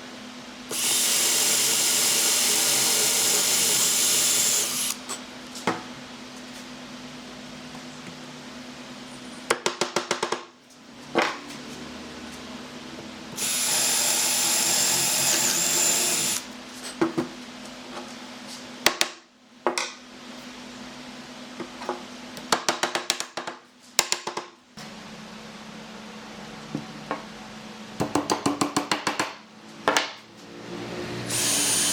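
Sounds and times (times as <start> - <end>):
power drill running: 0.7 - 5.0, 13.4 - 16.5, 31.3 - 31.9.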